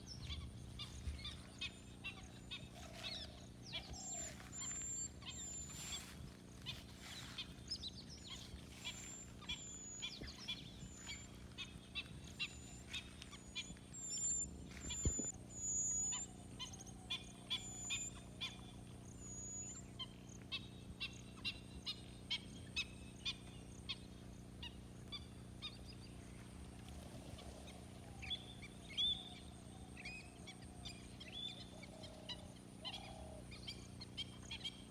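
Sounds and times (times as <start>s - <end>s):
birds calling and chirping: 0.0s - 22.0s, 26.8s - 34.9s
steady low hum: 0.0s - 34.9s
high-pitched bird whistles: 14.0s - 16.3s.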